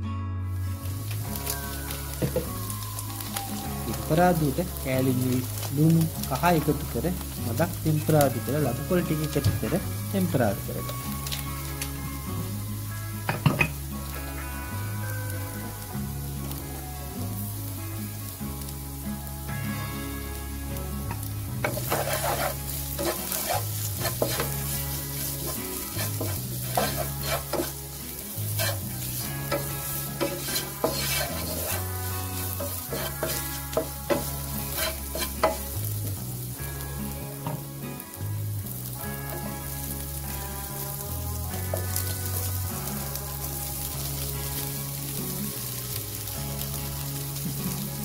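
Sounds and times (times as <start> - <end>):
food sizzling in hot oil: 0.5 - 48.0
spatula scraping a pan: 21.6 - 35.8.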